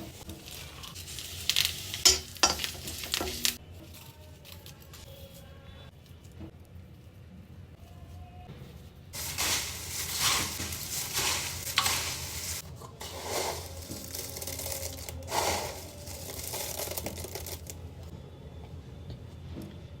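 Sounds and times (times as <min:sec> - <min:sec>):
puffed rice rustling and scraping: 0:00.0 - 0:05.4, 0:09.2 - 0:17.8.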